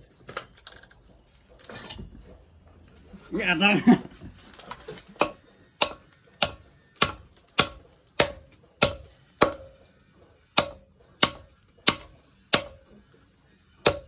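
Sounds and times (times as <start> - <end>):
hammer striking steel on anvil: 5.2 - 9.8, 10.6 - 12.9.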